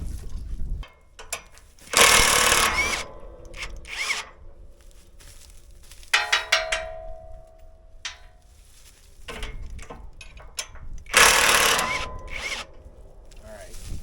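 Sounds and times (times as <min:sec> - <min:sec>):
metal tools clinking: 0:00.2 - 0:13.5
metallic clicks: 0:00.8 - 0:04.7, 0:06.0 - 0:08.4, 0:09.2 - 0:13.4
metal tool scraping: 0:00.9 - 0:05.0, 0:09.2 - 0:13.0.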